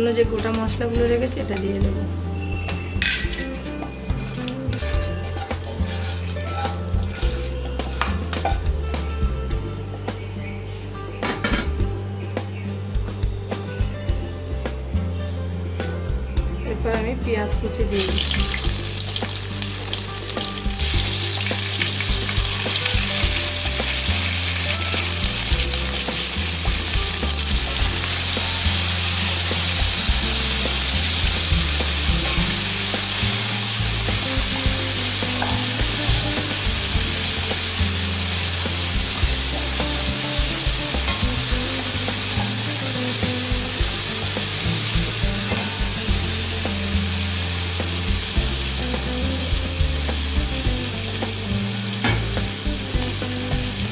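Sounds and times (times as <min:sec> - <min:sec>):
onions sizzling in hot oil: 0:02.4 - 0:08.7, 0:17.9 - 0:53.9.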